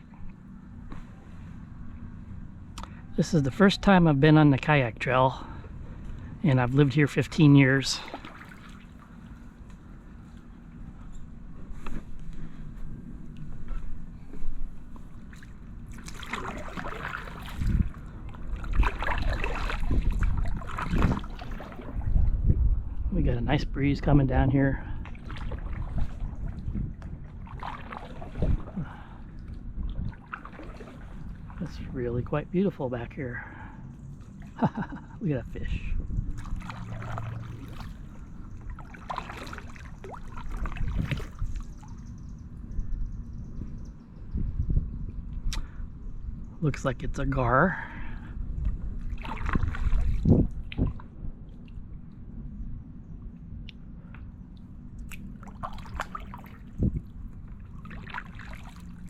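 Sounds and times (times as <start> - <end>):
wind rumbling on microphone: 0.0 - 59.0
paddle strokes splashing water: 7.8 - 9.6, 14.6 - 22.4, 25.0 - 32.2, 36.3 - 42.1, 48.6 - 51.8, 55.0 - 59.0.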